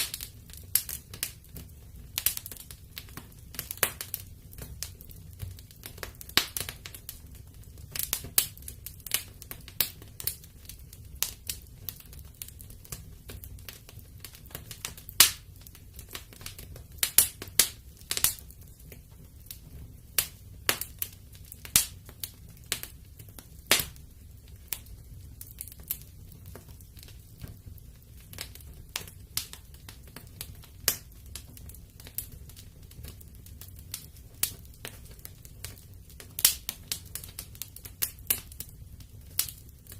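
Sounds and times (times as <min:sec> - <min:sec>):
fire crackling and popping: 0:00.0 - 0:39.9
fire rumbling: 0:00.0 - 0:39.9.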